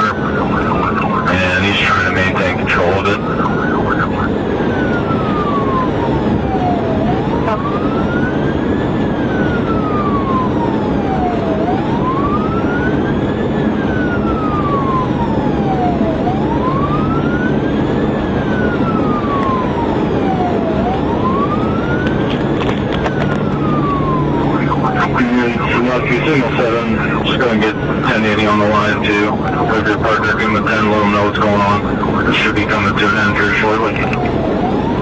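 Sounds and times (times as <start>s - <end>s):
police siren wailing: 0.0s - 35.0s
road and engine noise: 0.0s - 35.0s.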